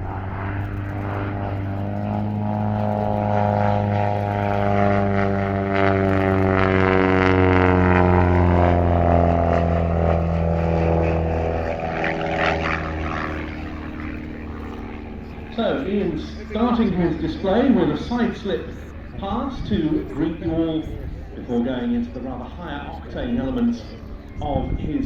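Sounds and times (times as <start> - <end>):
propeller plane droning past: 0.0 - 25.0.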